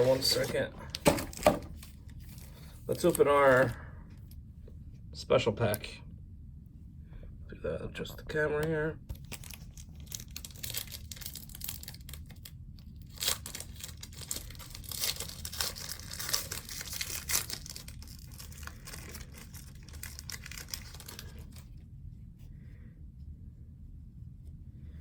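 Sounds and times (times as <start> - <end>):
wrapper tearing and crinkling: 0.0 - 3.7, 9.1 - 21.7.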